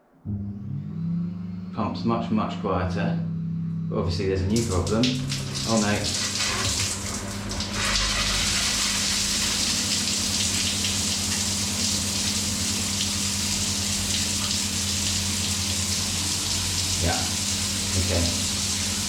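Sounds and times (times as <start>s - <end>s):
low steady pump hum: 0.3s - 19.0s
shower water spraying: 4.5s - 19.0s.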